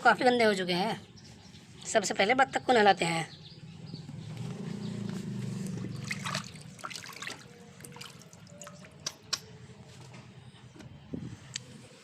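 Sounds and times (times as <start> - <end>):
water trickling and dripping: 5.9 - 9.1
small water splashes: 5.9 - 9.2.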